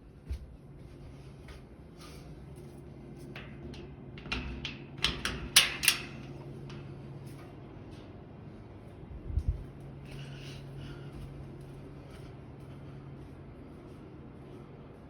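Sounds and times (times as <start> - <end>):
sharp clicks and knocks: 3.4 - 6.9.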